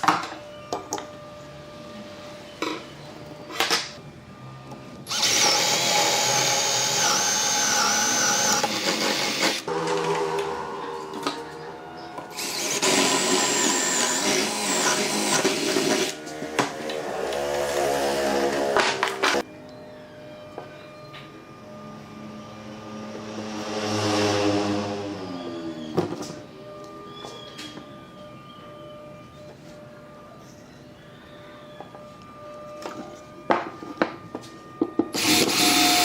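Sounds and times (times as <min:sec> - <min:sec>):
power tool whining: 0:04.4 - 0:28.4, 0:34.2 - 0:36.0.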